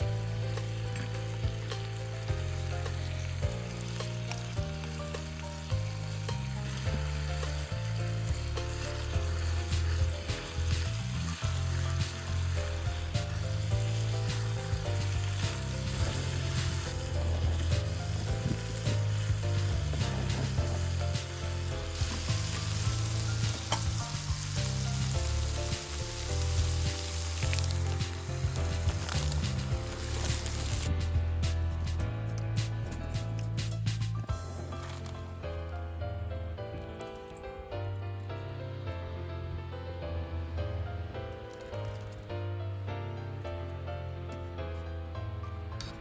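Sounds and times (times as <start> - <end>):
food sizzling in a pan: 0.0 - 30.9
background music with bass line: 0.0 - 41.4.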